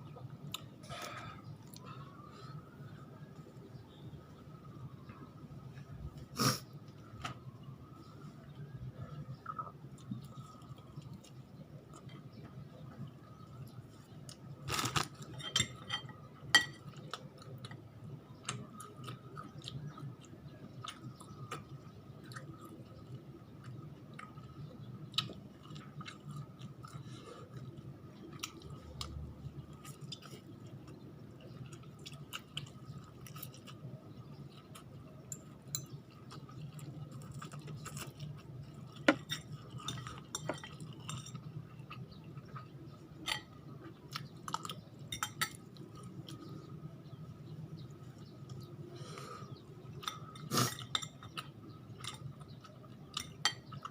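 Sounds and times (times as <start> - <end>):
faint steady hum: 0.0 - 53.9
person chewing food: 9.2 - 15.4, 16.7 - 47.2, 47.8 - 53.9
utensils clinking against dish: 15.2 - 16.9.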